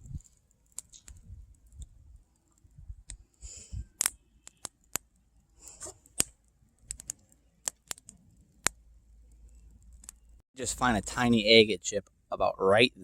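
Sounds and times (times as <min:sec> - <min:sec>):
sharp irregular clicks: 0:06.2 - 0:08.8.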